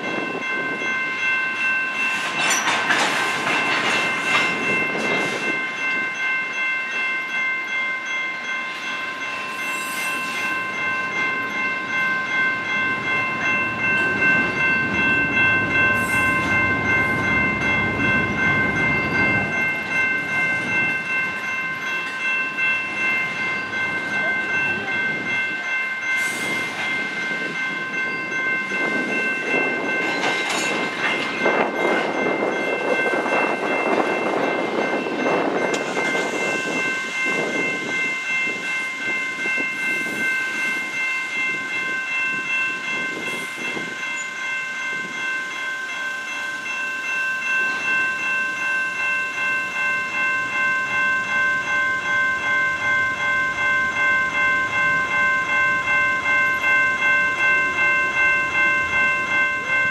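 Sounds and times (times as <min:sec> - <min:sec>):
level crossing warning bell: 0:00.0 - 0:59.9
freight cars rolling and clanking: 0:02.0 - 0:05.8, 0:12.8 - 0:39.6.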